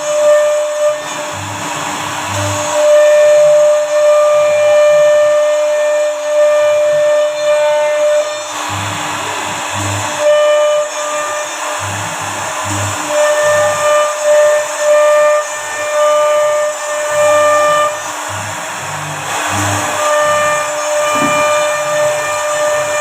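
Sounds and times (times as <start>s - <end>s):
router bit whining in wood: 0.0s - 23.0s
higher machine tone: 0.1s - 23.0s
short low hums: 8.0s - 14.8s, 17.0s - 23.0s.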